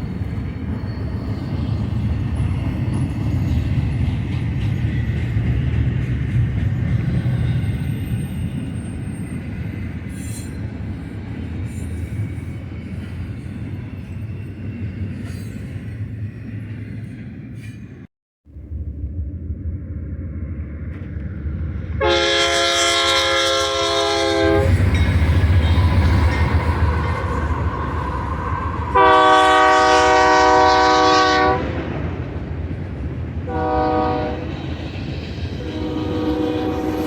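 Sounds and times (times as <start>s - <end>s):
low rumble of train: 0.0s - 37.0s
locomotive air horn blasts: 22.0s - 24.9s, 28.9s - 31.8s, 33.5s - 34.5s, 35.6s - 37.0s.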